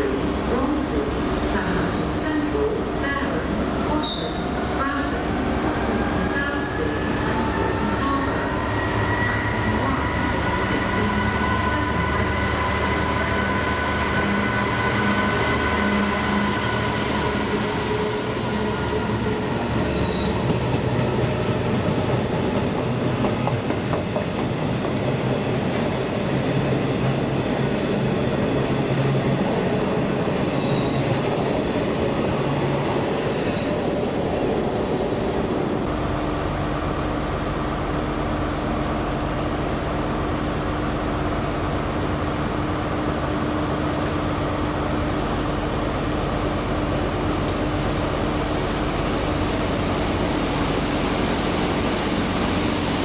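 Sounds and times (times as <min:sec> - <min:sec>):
train wheels squealing on rails: 0:06.2 - 0:20.7, 0:22.3 - 0:34.1, 0:46.2 - 0:47.9, 0:48.9 - 0:53.0.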